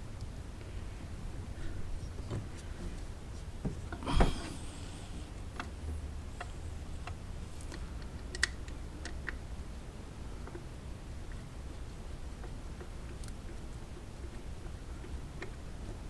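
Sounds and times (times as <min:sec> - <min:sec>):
loud clunk: 0:04.1 - 0:04.6.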